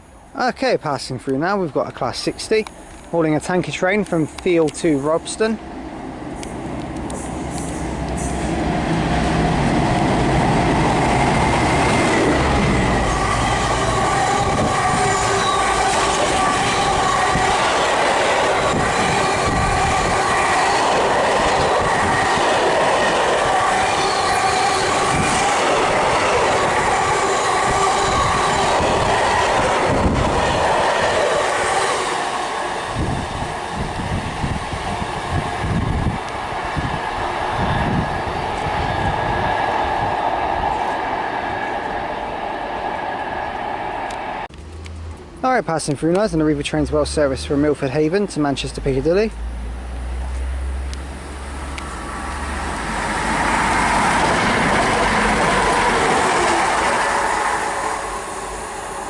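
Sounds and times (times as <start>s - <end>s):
diesel locomotive engine drone: 1.2s - 59.0s
ringing wheel squeal: 23.9s - 25.0s.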